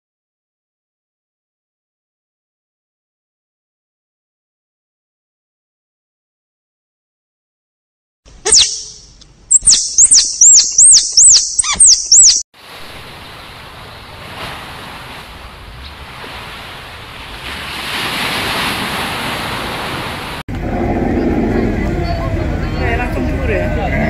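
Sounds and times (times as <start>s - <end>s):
squirrel chirping: 8.4s - 12.4s
rushing water: 12.6s - 20.4s.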